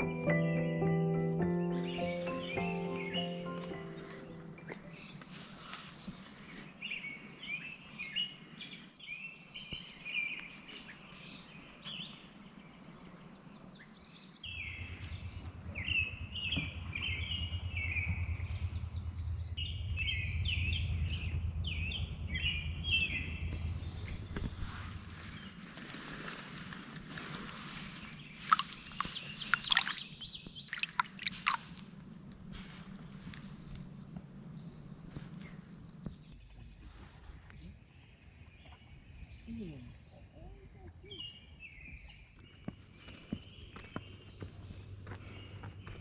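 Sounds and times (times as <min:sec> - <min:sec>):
small birds chirping: 0:00.0 - 0:46.0
low steady rumble: 0:14.4 - 0:41.6.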